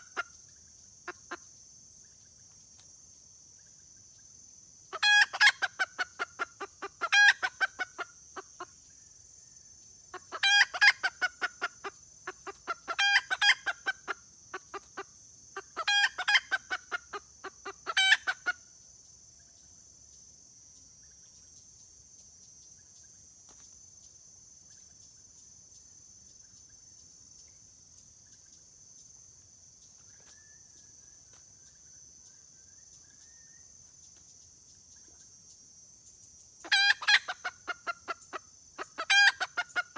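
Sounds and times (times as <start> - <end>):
hen cackling: 0.0 - 0.4, 4.9 - 8.7, 10.1 - 18.6, 36.6 - 39.9.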